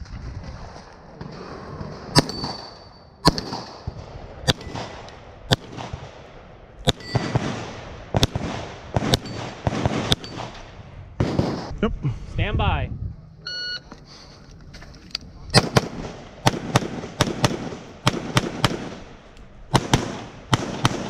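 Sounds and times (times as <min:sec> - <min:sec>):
gunshots: 0:00.4 - 0:11.8, 0:15.5 - 0:21.0
high ringing: 0:06.9 - 0:07.4, 0:13.4 - 0:13.9.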